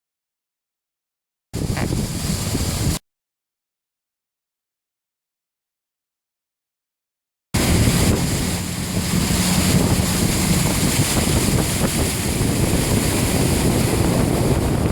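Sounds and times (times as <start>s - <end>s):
engine humming: 7.6s - 14.9s
water churning around tyres: 7.6s - 14.9s.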